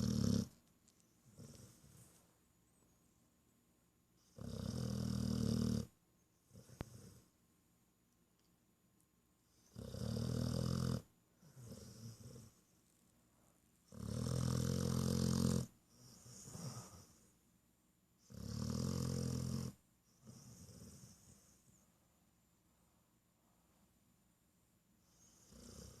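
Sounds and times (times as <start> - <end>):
dog snoring: 0.0 - 0.6, 1.3 - 2.1, 4.2 - 7.3, 9.5 - 12.6, 13.9 - 17.3, 18.2 - 21.6, 25.1 - 26.0.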